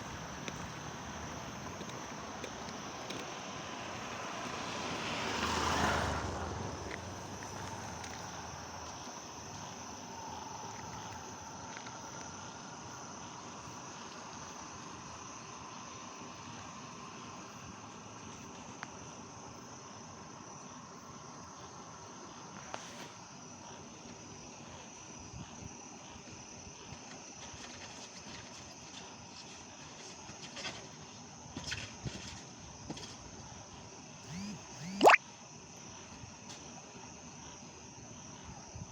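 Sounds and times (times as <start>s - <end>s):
insects chirring: 0.0s - 27.4s, 34.2s - 35.8s
passing vehicle: 3.3s - 9.0s.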